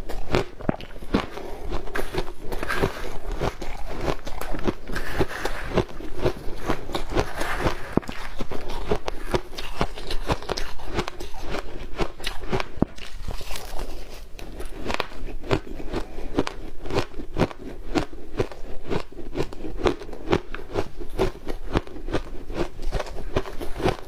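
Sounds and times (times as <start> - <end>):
ice crunching being chewed: 0.0 - 24.0.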